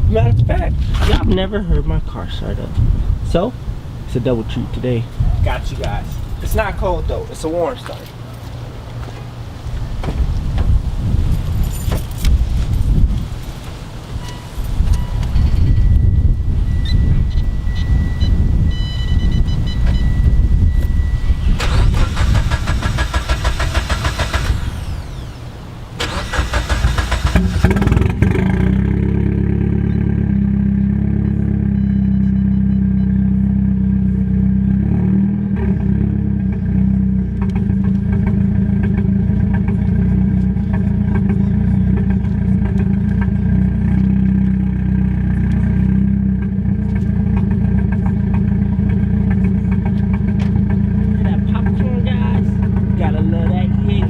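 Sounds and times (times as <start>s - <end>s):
car engine starting and idling: 14.2s - 54.0s.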